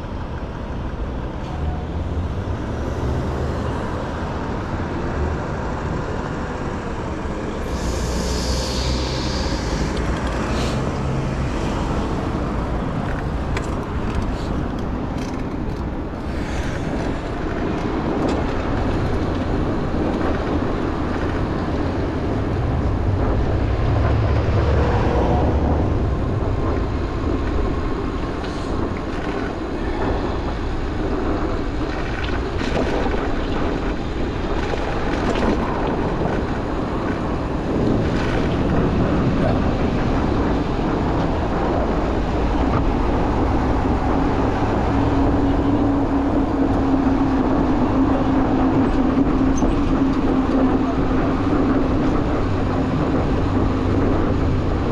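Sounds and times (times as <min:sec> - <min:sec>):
passing vehicles rumbling: 0:00.0 - 0:54.9
brief high squeal: 0:07.6 - 0:10.9.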